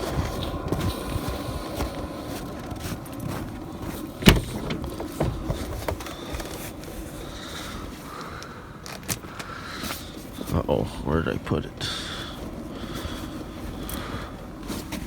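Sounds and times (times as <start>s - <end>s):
steady machine hum: 0.0s - 15.0s
small clicks and rustles: 0.1s - 10.5s.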